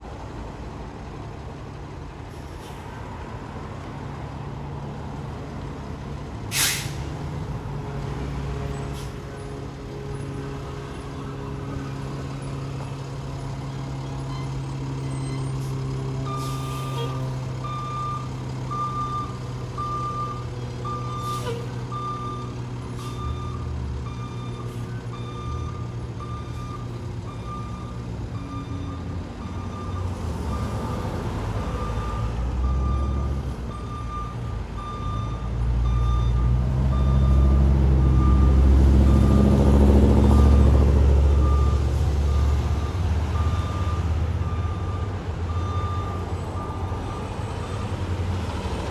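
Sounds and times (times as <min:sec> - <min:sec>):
diesel engine running: 0:00.0 - 0:48.9
air brake hiss: 0:06.5 - 0:07.1
reversing alarm beeping: 0:16.2 - 0:30.9, 0:31.8 - 0:48.1.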